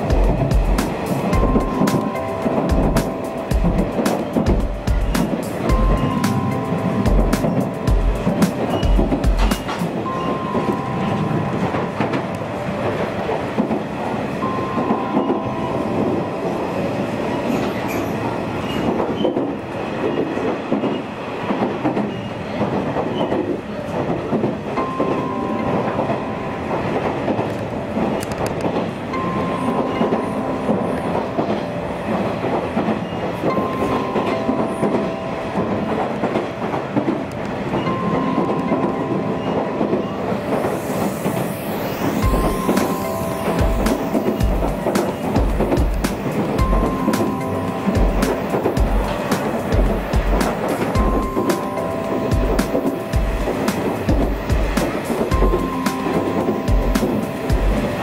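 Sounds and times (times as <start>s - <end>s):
steady high tones: 0.0s - 21.2s, 24.6s - 58.0s
train wheels rumbling on rail: 0.0s - 58.0s.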